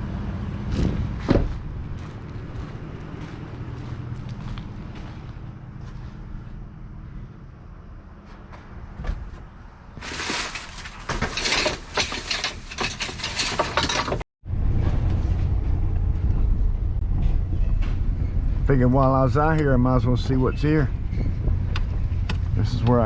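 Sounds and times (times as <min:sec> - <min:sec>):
vehicle engine rumbling: 0:00.0 - 0:23.0
rummaging and clicking: 0:10.0 - 0:14.2.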